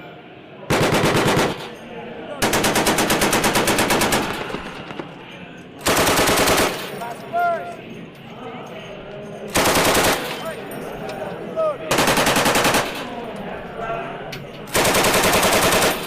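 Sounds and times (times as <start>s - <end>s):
automatic gunfire bursts: 0.7s - 1.8s, 2.4s - 5.1s, 5.8s - 6.9s, 9.5s - 10.4s, 11.9s - 13.1s, 14.7s - 16.0s.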